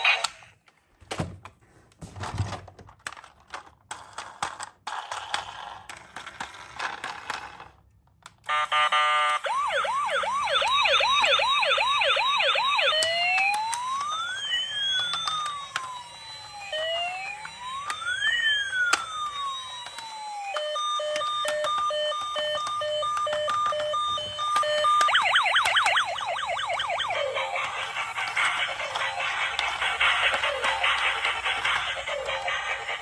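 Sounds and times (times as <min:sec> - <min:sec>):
electronic police siren: 0:08.5 - 0:33.0.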